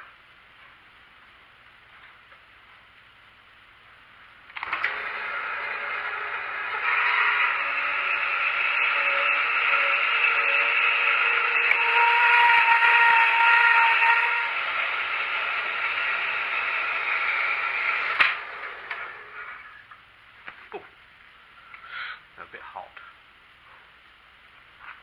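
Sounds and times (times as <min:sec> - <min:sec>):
saw stopping click: 0:04.5 - 0:19.6
power saw cutting steel: 0:04.6 - 0:19.8.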